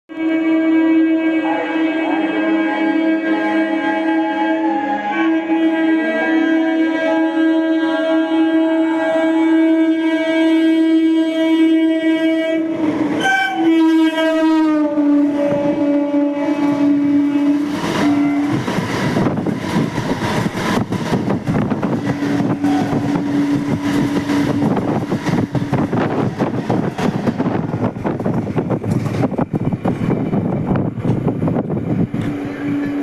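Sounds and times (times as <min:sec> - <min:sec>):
train horn: 0:00.1 - 0:28.2, 0:32.2 - 0:33.0
train wheels clattering over rails: 0:17.6 - 0:33.0.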